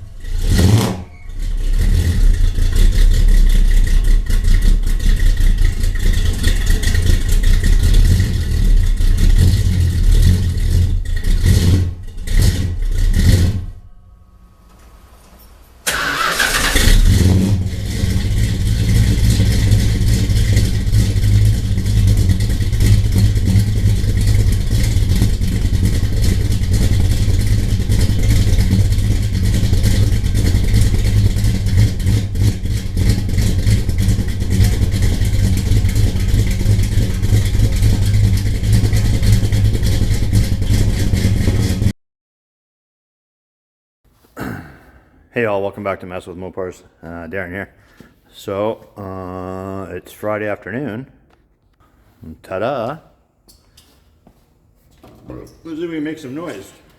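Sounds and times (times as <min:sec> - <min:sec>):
car engine starting and running: 0:00.0 - 0:41.9.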